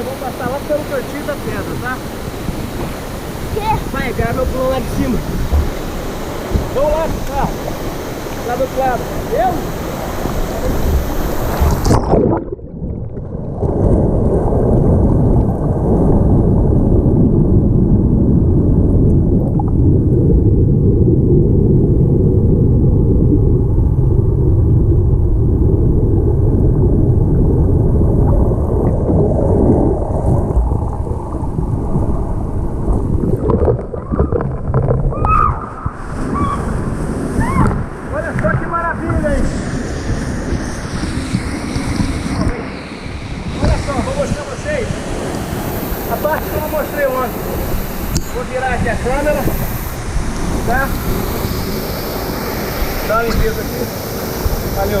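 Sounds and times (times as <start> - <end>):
waterfall hissing: 0.0 - 12.1, 37.4 - 55.0
muffled underwater water rumble: 0.0 - 55.0.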